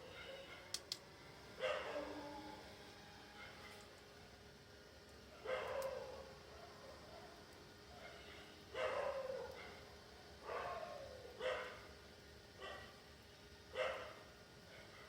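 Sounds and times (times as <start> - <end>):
dog barking: 0.0 - 0.7, 1.6 - 2.2, 3.4 - 3.7, 5.4 - 7.4, 8.0 - 9.8, 10.4 - 11.9, 12.6 - 12.9, 13.7 - 15.0.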